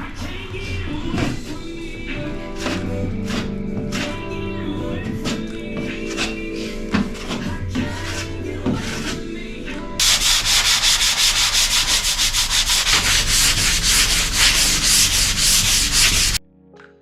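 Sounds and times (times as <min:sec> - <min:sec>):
hand sanding strokes: 0:02.4 - 0:04.2, 0:10.0 - 0:16.4.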